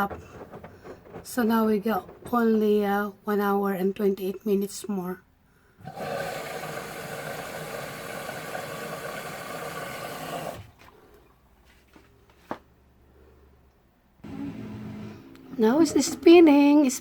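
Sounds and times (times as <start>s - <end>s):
washer dryer running: 0.0s - 3.3s, 5.8s - 10.8s.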